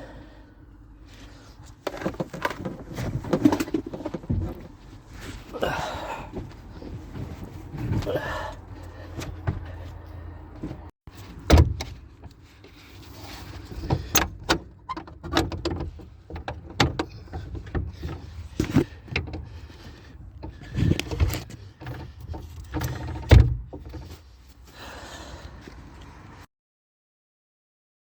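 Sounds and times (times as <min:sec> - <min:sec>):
knocks and clunks around a car: 0:01.7 - 0:05.5, 0:06.2 - 0:24.4.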